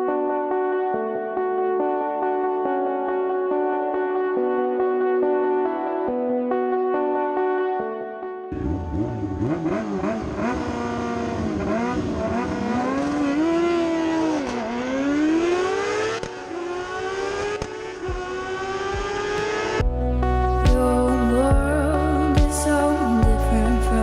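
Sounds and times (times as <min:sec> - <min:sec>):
truck engine revving: 0:08.5 - 0:23.0.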